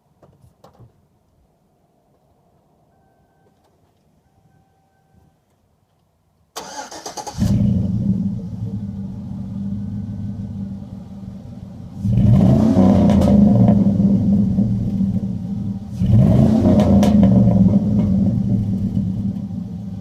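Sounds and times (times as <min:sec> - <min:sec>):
pickup engine idling and revving: 0:07.3 - 0:20.0.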